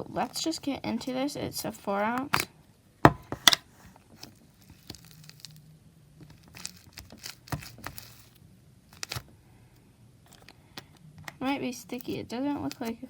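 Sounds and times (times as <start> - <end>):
plastic container crinkling: 4.2 - 5.6, 6.2 - 9.2, 11.4 - 13.0.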